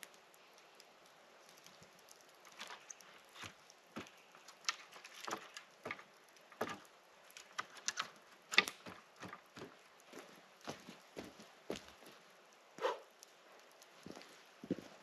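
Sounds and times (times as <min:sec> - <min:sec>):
footsteps on forest floor: 0:09.5 - 0:12.2.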